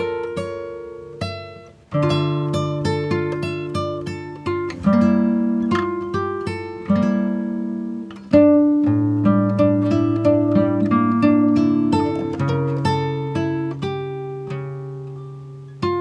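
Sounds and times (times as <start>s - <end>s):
acoustic guitar plucking chords: 0.0s - 16.0s.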